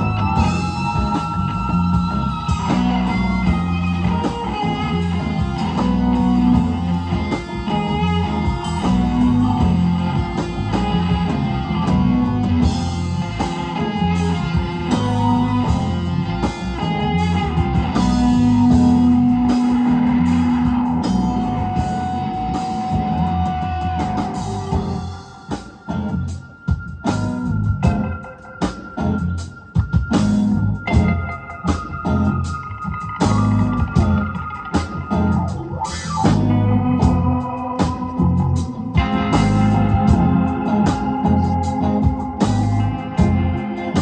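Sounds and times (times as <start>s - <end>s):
live rock band playing: 0.0s - 44.0s.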